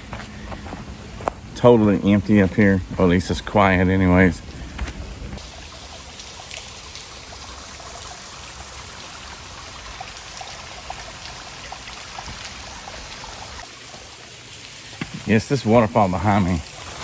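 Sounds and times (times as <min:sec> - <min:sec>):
water splashing on rocks: 0:05.4 - 0:13.7.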